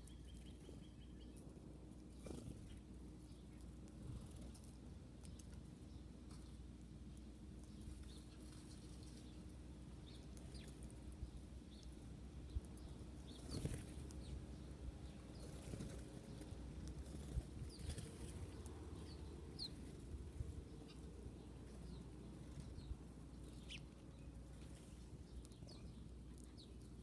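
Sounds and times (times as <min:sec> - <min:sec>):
small birds chirping: 0:00.0 - 0:27.0
steady low hum: 0:00.0 - 0:27.0
wings fluttering: 0:01.9 - 0:02.9, 0:03.5 - 0:05.6, 0:07.8 - 0:09.4, 0:13.2 - 0:14.4, 0:15.1 - 0:25.7.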